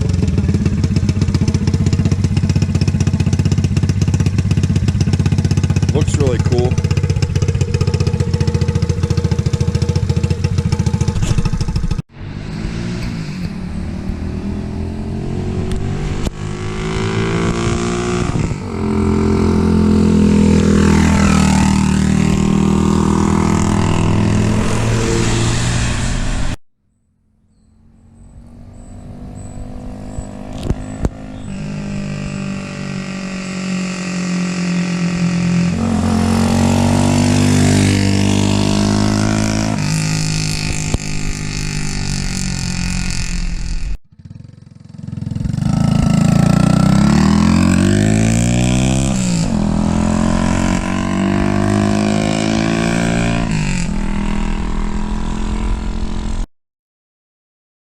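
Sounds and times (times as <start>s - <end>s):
motorbike engine running: 0.0s - 12.0s
motorbike passing by: 0.0s - 26.6s, 27.7s - 56.5s.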